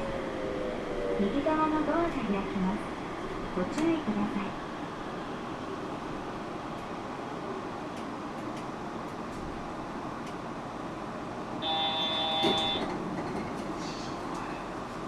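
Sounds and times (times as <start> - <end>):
stopped train ambience: 0.0 - 15.0
electronic warning tone: 11.6 - 12.8.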